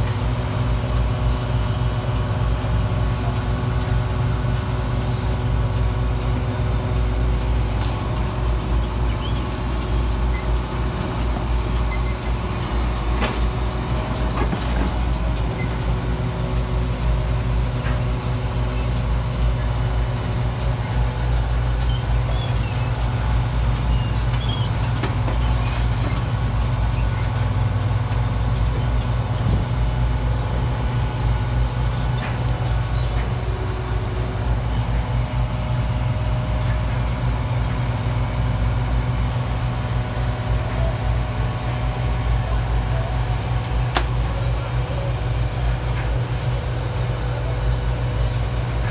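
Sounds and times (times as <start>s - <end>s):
garbage truck engine running: 0.0s - 48.9s.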